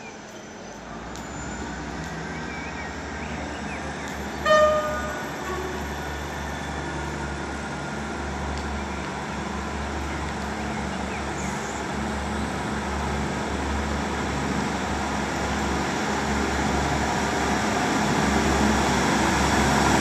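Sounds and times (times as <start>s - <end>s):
train engine drone: 0.0s - 20.0s
train horn toot: 4.4s - 6.0s.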